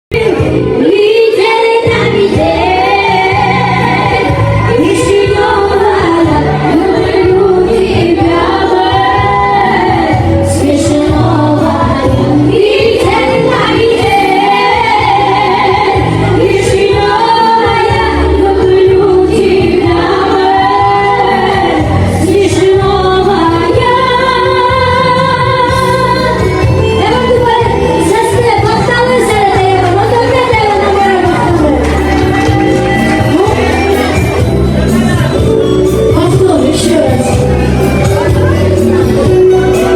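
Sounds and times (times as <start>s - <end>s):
woman singing: 0.1s - 37.6s
electronic backing track with bass beat: 1.6s - 39.9s.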